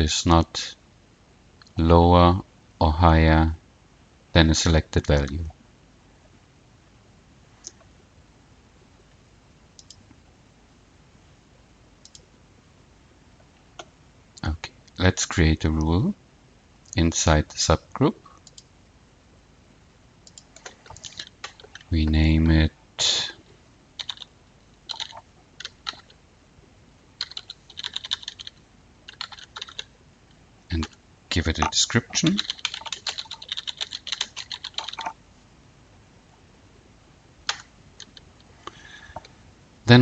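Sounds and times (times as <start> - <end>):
computer mouse clicks: 9.8 - 10.2, 12.0 - 12.3, 18.4 - 18.7, 20.2 - 21.9, 24.9 - 26.2, 27.2 - 29.9, 32.4 - 35.2, 37.4 - 38.3.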